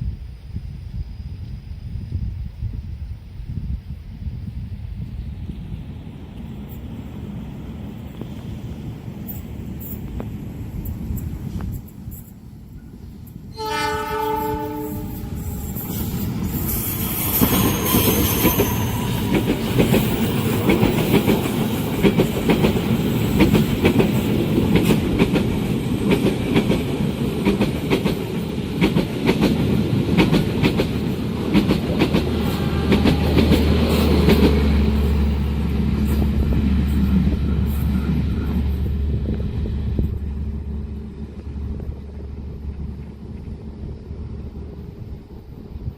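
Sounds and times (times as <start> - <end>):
train passing with rumble: 0.0 - 45.9
train horn: 13.5 - 20.2, 32.1 - 39.2
wheels clacking over rail joints: 15.2 - 44.2.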